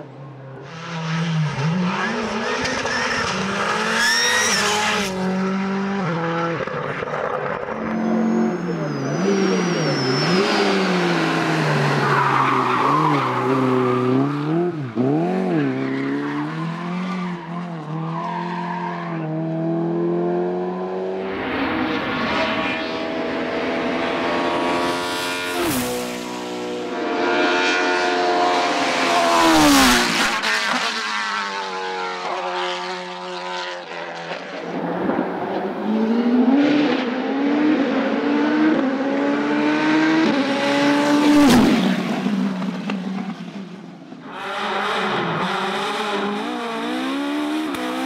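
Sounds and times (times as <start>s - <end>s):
tyre squeal: 2.6s - 4.9s, 7.7s - 13.9s
race car engine revving: 35.4s - 48.0s.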